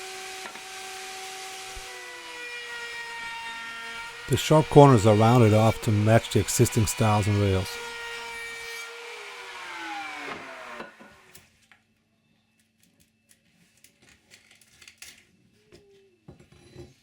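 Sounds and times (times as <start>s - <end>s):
power tool motor winding down: 8.9s - 11.3s.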